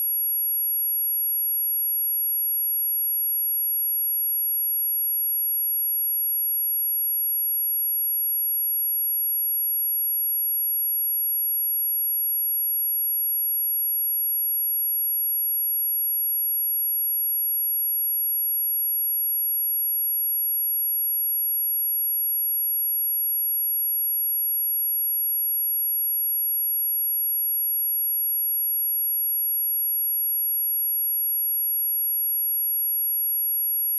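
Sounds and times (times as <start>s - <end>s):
high-pitched sine test tone: 21.4s - 33.9s.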